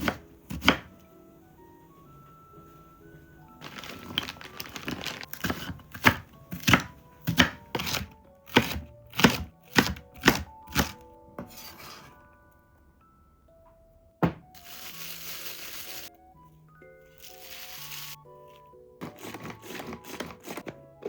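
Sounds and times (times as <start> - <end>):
knife chopping on cutting board: 0.0 - 0.9, 5.3 - 11.9, 14.2 - 14.5.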